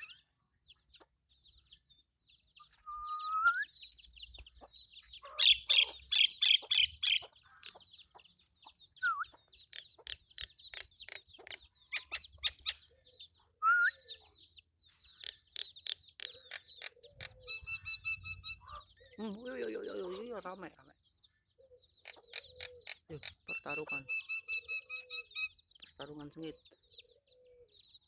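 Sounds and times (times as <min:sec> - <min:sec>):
chicks peeping: 0:00.0 - 0:28.0
lower rising calls: 0:17.2 - 0:19.2.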